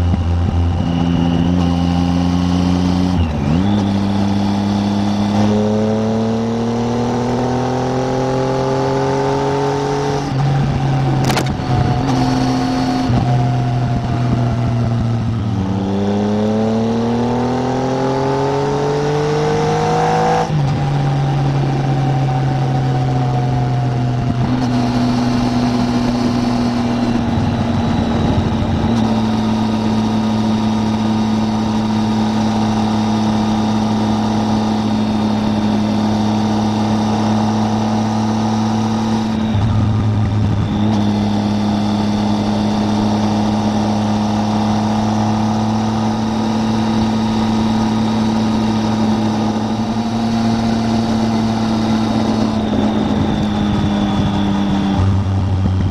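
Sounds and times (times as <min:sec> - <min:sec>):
motorcycle engine running: 0:00.0 - 0:55.9
wind rush on microphone: 0:09.2 - 0:17.9, 0:19.6 - 0:55.9.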